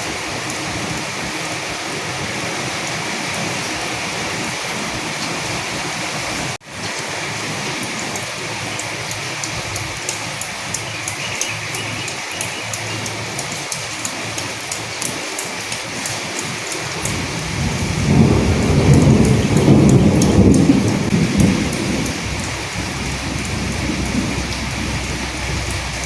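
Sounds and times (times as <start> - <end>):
heavy rain: 0.0 - 26.0
thunder rumbling: 16.9 - 26.0.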